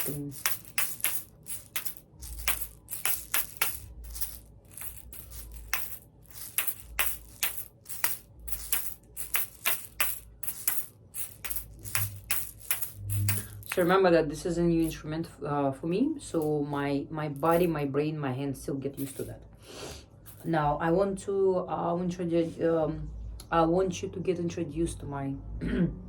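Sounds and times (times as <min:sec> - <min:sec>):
seed rattle shaken: 0:00.0 - 0:13.9.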